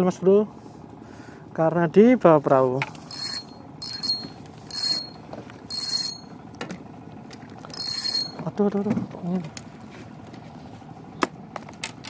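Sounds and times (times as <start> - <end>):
fishing reel ratcheting: 3.0 - 6.3, 7.6 - 8.5.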